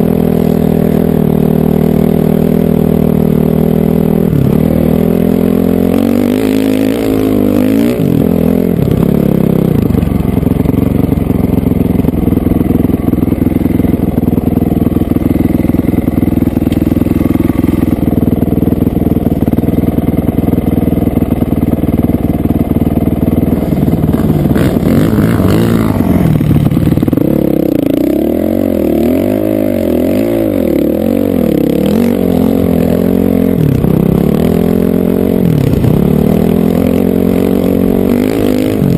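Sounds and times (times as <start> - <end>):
dirt bike engine ridden hard: 0.0 - 38.9.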